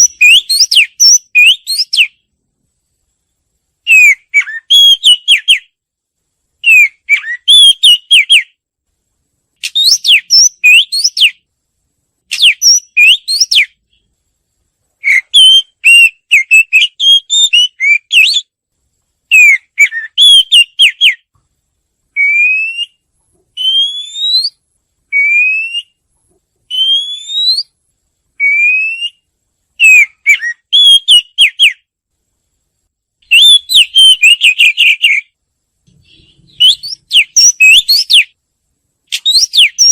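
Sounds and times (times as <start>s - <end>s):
bird singing whistled notes: 0.0s - 2.2s, 3.8s - 5.8s, 6.6s - 8.6s, 9.6s - 11.5s, 12.3s - 14.1s, 15.0s - 18.6s, 19.3s - 21.3s, 22.2s - 23.0s, 23.6s - 26.0s, 26.7s - 27.8s, 28.4s - 31.9s, 33.2s - 38.4s, 39.1s - 39.9s
upward-sliding bird whistles: 9.6s - 11.4s, 12.3s - 13.7s, 23.6s - 26.0s, 26.7s - 27.7s, 33.3s - 35.2s, 35.9s - 38.3s, 39.1s - 39.9s.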